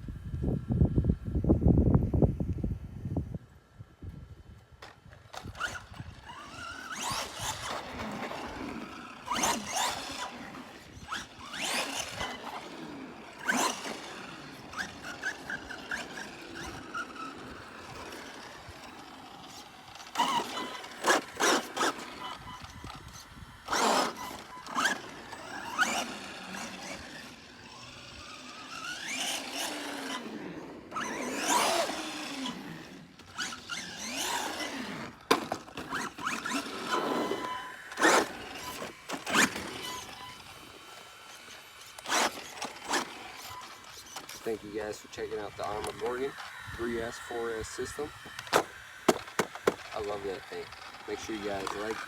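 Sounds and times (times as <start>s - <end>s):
electric motor whine: 4.8s - 52.0s
tyre squeal on pavement: 5.6s - 12.8s, 35.7s - 40.7s, 41.3s - 46.3s.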